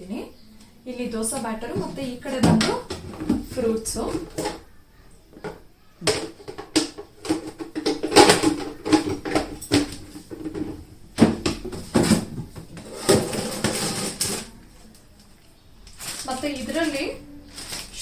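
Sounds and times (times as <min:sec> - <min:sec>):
containers knocking and clattering: 0:01.2 - 0:14.7
rustling: 0:07.2 - 0:18.0.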